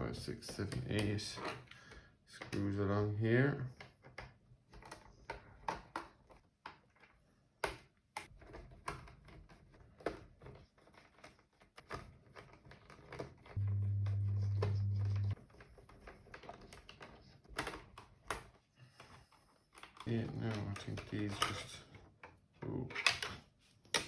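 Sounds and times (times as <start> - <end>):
steady low hum: 13.6 - 15.4.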